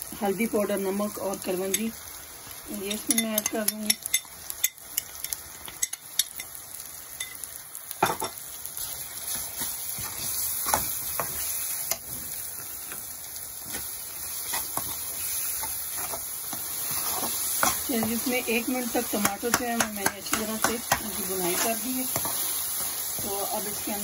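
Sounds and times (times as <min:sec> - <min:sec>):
food sizzling in hot oil: 0:00.0 - 0:24.0
utensil knocking and scraping pan: 0:19.0 - 0:22.4.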